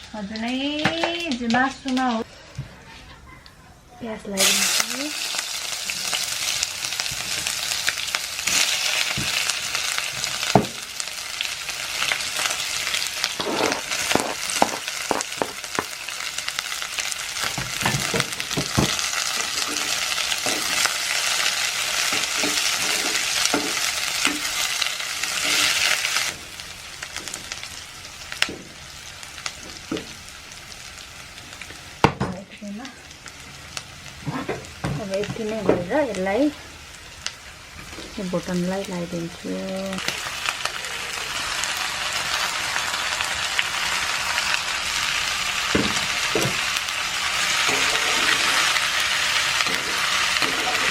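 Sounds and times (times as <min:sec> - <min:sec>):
onion sizzling in hot oil: 0:00.0 - 0:02.6, 0:04.0 - 0:50.9
spoon knocking and scraping pan: 0:13.3 - 0:16.0, 0:17.4 - 0:20.9, 0:22.0 - 0:24.6, 0:45.7 - 0:46.7.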